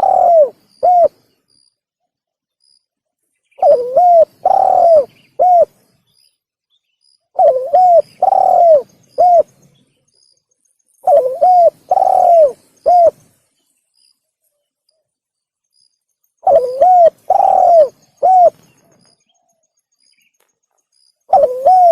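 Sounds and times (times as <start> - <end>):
dove cooing: 0.0 - 1.2, 3.6 - 5.8, 7.4 - 9.6, 11.0 - 13.2, 16.4 - 19.1, 21.3 - 21.9.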